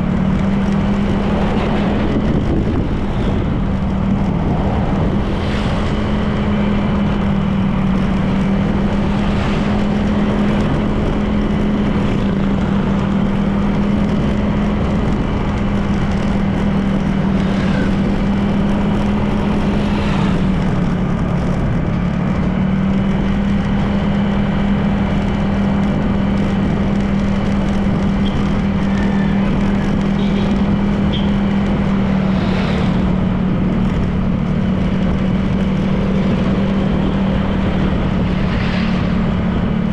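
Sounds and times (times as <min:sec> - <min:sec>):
scooter engine running: 0:00.0 - 0:39.9
wind and road noise: 0:00.0 - 0:39.9.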